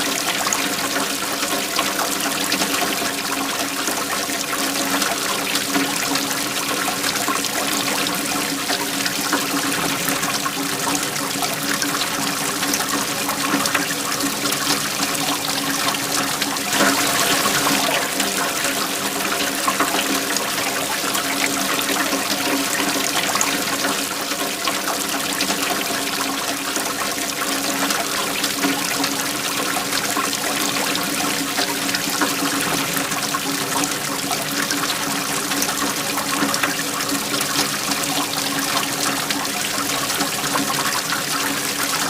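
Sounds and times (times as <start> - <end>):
waterfall pouring and splashing: 0.0 - 42.0.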